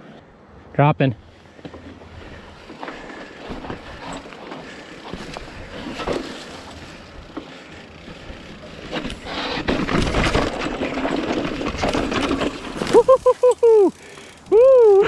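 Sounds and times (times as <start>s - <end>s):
tyres crunching over dirt and rock: 1.5s - 13.2s
bike clicks and rattles: 1.5s - 15.0s.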